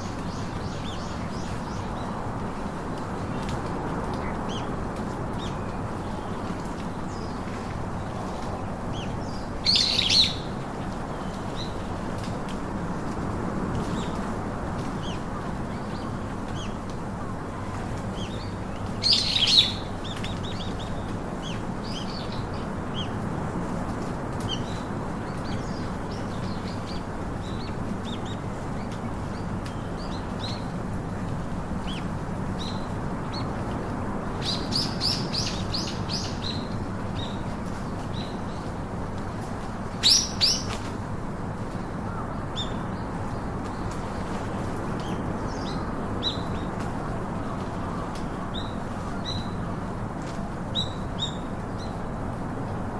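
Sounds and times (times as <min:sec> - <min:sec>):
steady background noise: 0:00.0 - 0:52.9
small birds chirping: 0:03.0 - 0:12.3, 0:17.4 - 0:23.3, 0:24.4 - 0:40.9.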